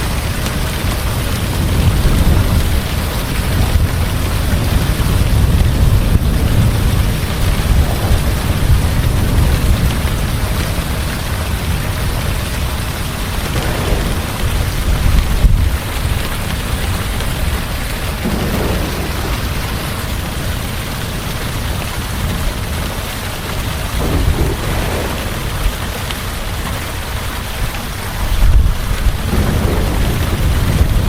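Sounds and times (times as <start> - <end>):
heavy rain pouring: 0.0 - 31.0
low rumble of thunder: 0.0 - 31.0.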